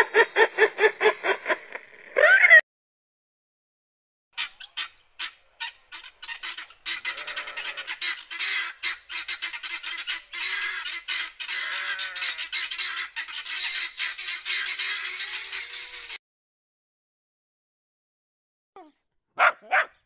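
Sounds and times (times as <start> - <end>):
birds squawking: 4.4 - 16.2, 19.4 - 20.0.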